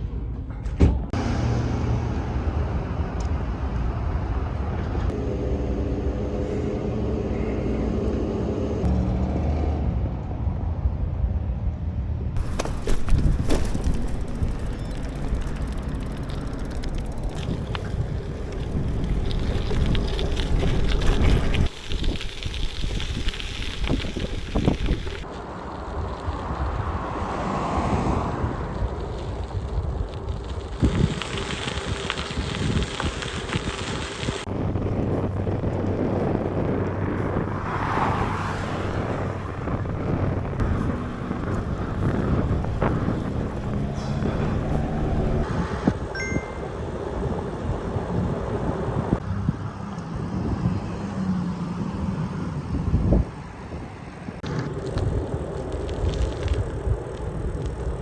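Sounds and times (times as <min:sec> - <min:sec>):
road and traffic rumble: 0:00.0 - 0:58.0
wind buffeting microphone: 0:12.4 - 0:46.1, 0:46.8 - 0:58.0.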